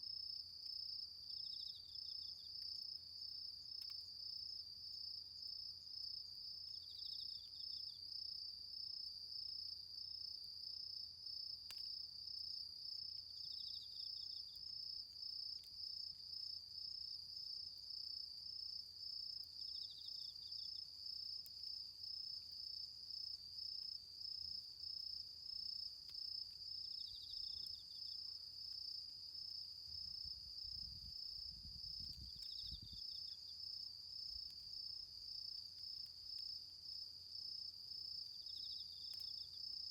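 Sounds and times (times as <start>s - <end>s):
faint ticks: 3.6s - 4.1s, 11.6s - 12.1s, 24.3s - 29.6s, 31.3s - 39.9s.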